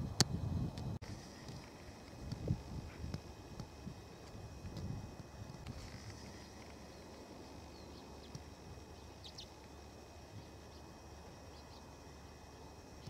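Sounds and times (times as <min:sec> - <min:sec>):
songbird chirps: 0:05.8 - 0:12.3.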